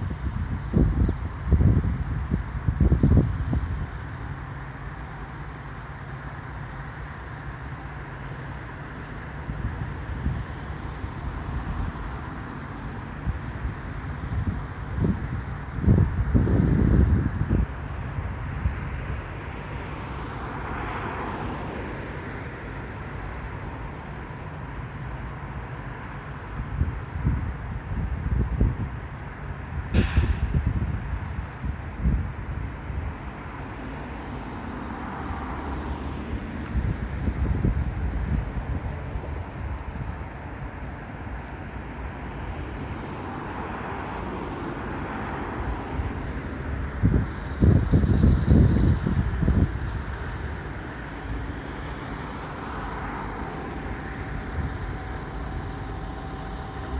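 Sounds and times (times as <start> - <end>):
street traffic noise: 0.0 - 56.9
low vehicle rumble: 29.8 - 56.9.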